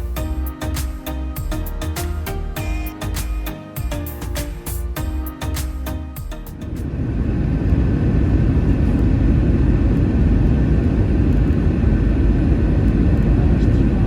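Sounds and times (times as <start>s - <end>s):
airplane cabin engine rumble: 6.8s - 14.0s.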